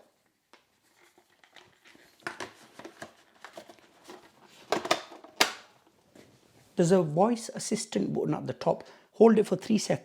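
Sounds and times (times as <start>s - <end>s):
plastic vacuum parts clicking: 1.4s - 5.7s.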